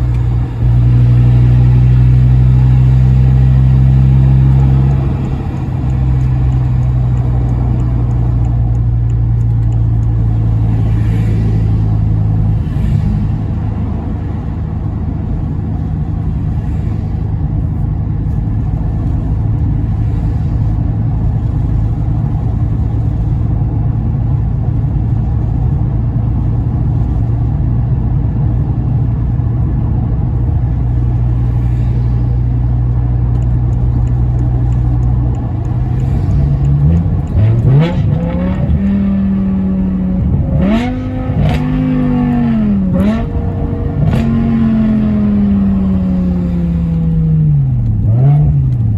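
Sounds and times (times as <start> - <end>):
car engine revving: 0.0 - 14.4, 30.4 - 48.9.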